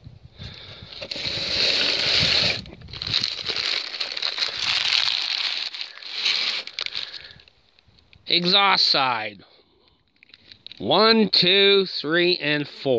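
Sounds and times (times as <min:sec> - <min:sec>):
tape pulled off a roll: 0:00.9 - 0:03.8, 0:04.6 - 0:07.2.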